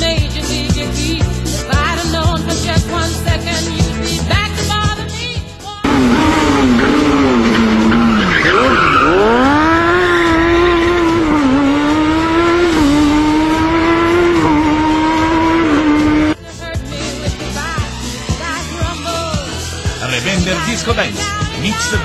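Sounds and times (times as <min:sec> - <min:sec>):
race car engine revving: 0:05.8 - 0:16.4
tyre squeal: 0:05.9 - 0:15.5.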